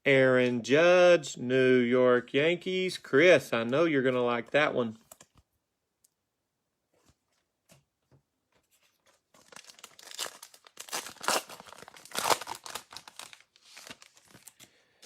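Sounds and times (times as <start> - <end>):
wrapper tearing and crinkling: 9.3 - 14.7.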